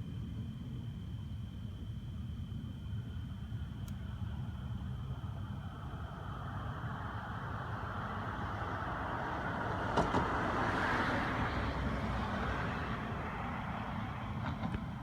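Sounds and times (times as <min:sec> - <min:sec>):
car passing by: 0:06.2 - 0:15.0.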